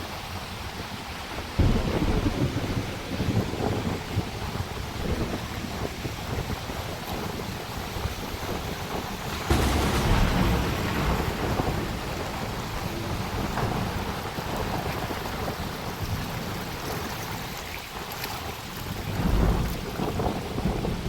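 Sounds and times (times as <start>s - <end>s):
heavy rain: 0.0s - 21.0s
thunder rumble: 1.5s - 17.4s, 18.9s - 21.0s.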